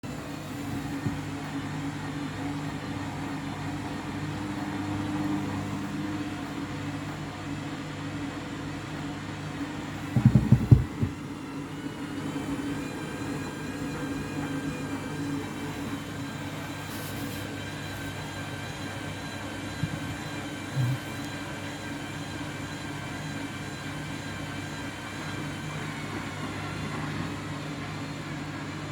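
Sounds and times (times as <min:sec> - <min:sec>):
washing machine drum turning: 0:10.0 - 0:11.4
shoes thumping in drum: 0:10.1 - 0:11.2.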